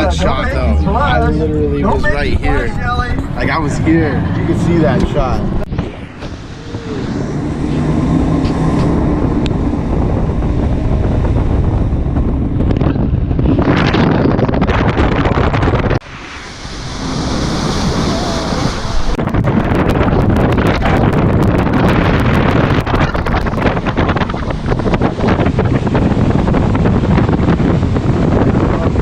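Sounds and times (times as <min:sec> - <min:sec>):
boat engine: 0:00.0 - 0:29.0
wind buffeting microphone: 0:00.0 - 0:29.0
rushing water: 0:16.0 - 0:29.0.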